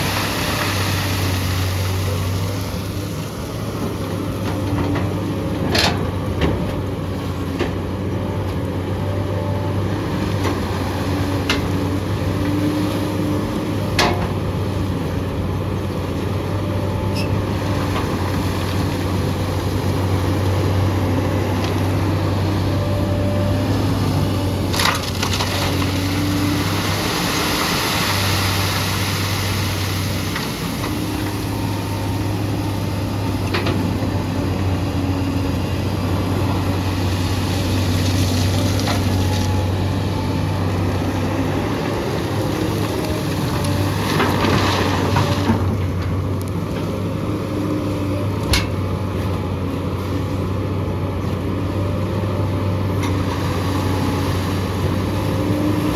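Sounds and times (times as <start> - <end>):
hiss of sliding gravel: 0.0 - 3.1, 25.2 - 30.7
excavator diesel engine running: 0.0 - 55.9.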